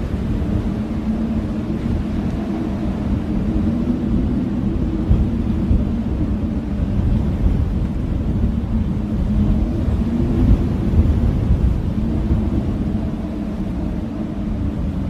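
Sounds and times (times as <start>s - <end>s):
blizzard wind howling: 0.0s - 15.0s.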